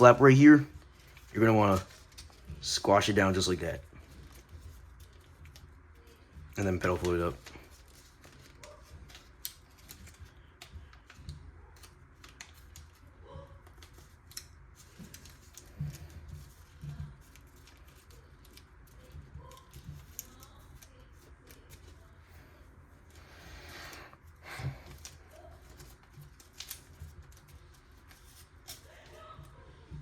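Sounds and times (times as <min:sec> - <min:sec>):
paper crinkling being folded: 0:00.0 - 0:30.0.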